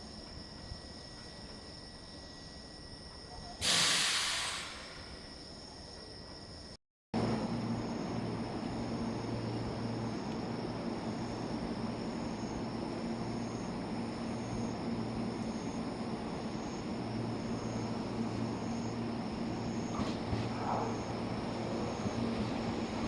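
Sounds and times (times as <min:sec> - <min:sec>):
insects chirping: 0:00.0 - 0:23.0
train equipment humming: 0:07.2 - 0:23.0.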